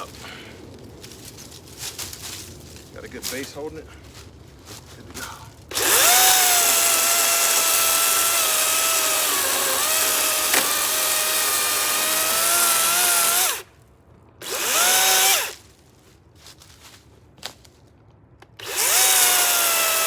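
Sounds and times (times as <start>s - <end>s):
electric chainsaw cutting a log: 5.7s - 13.7s, 14.4s - 15.6s, 18.6s - 20.0s.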